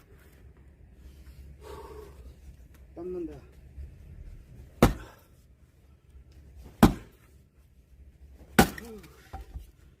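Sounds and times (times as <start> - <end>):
axe splitting logs: 4.8 - 5.2, 6.7 - 7.2, 8.4 - 9.6.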